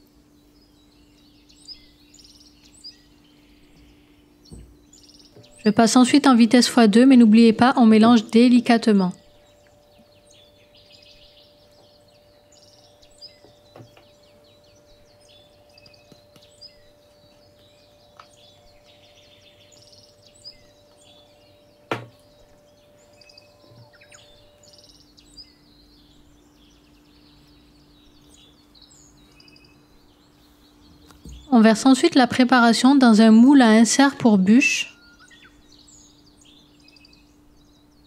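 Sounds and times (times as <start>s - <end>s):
faint birds chirping: 0.0s - 38.0s
low steady hum: 0.0s - 38.0s
sharp knock: 21.9s - 22.2s.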